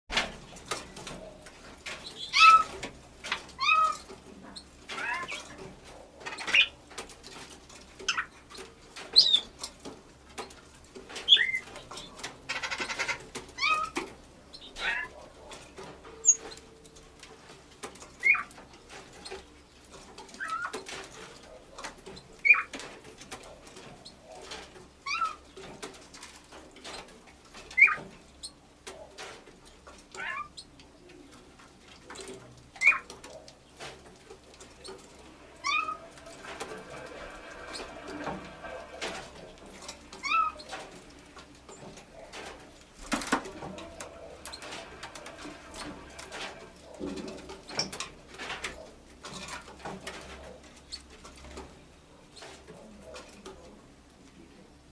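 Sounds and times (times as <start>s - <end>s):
buzzy rattle: 33.8s - 51.6s
bird making meow-like calls: 35.6s - 36.0s.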